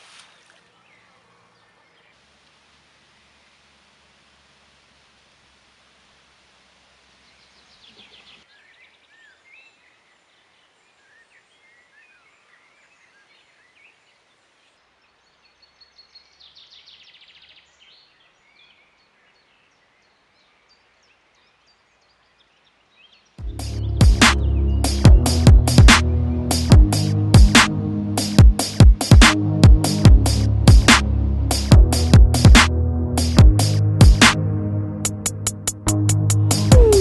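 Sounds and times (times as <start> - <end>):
background hiss: 0.0 - 34.4, 35.0 - 37.0
birds chirping and whistling: 23.5 - 26.7, 36.5 - 37.0.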